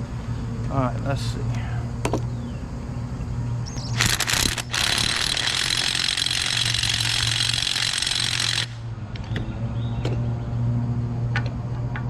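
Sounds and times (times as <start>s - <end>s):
steady low hum: 0.0s - 12.0s
power tool running: 3.8s - 8.8s.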